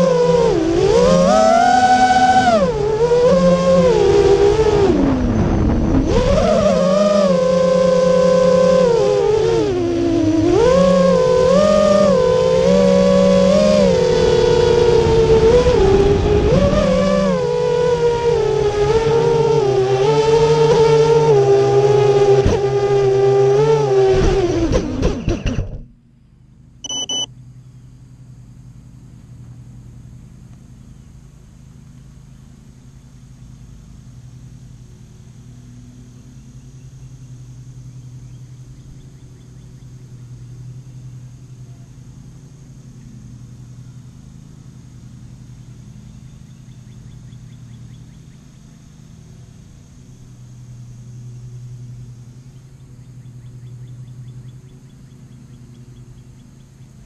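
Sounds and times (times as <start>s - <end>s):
quadcopter motors humming: 0.0s - 25.9s, 26.8s - 57.0s
electronic beep: 26.8s - 27.3s.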